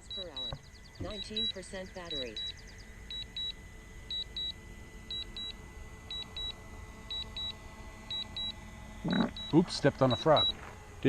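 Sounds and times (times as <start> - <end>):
high double beeps: 0.0 - 2.5, 9.1 - 10.6.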